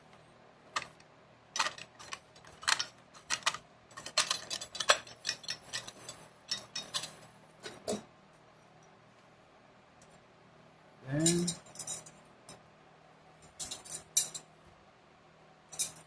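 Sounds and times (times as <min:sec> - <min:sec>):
metal parts clinking: 0:00.8 - 0:07.3, 0:11.2 - 0:12.6, 0:13.4 - 0:14.5, 0:15.7 - 0:16.0.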